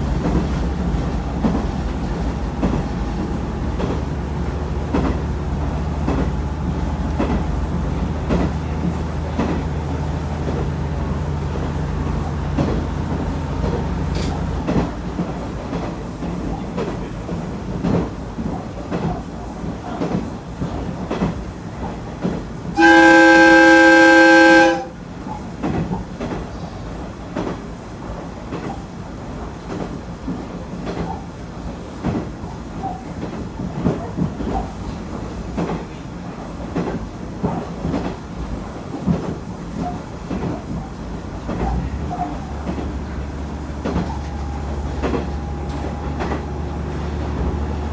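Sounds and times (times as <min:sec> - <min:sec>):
diesel railcar running: 0:00.0 - 0:47.9
train wheels clicking over joints: 0:00.0 - 0:47.9
train horn blast: 0:22.8 - 0:25.0.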